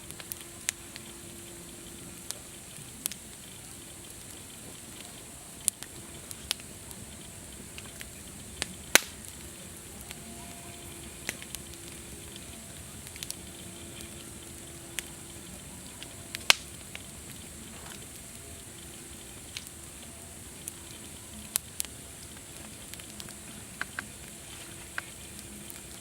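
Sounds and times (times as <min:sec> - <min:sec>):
campfire crackling: 0:00.0 - 0:26.0.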